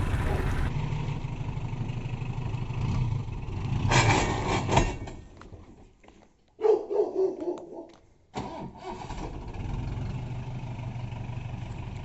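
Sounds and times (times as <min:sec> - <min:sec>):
loud rush: 0:00.0 - 0:00.7
diesel engine idling: 0:00.0 - 0:02.5.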